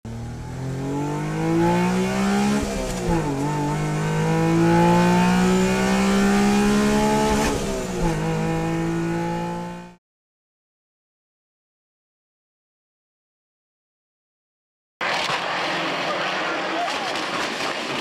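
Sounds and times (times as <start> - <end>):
rally car engine accelerating: 0.1 - 10.0.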